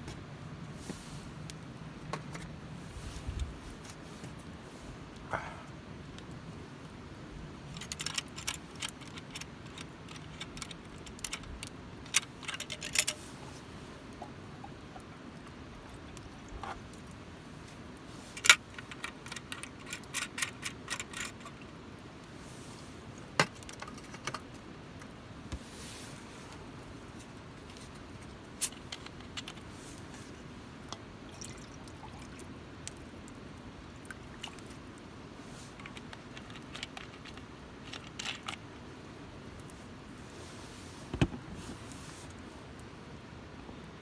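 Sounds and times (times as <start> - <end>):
campfire crackling and popping: 6.0 - 12.4, 26.5 - 40.0.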